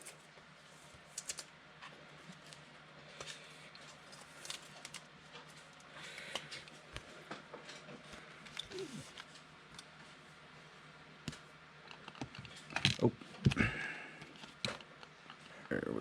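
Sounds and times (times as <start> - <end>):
trading cards rustling and clicking: 1.1 - 1.5, 2.3 - 7.1.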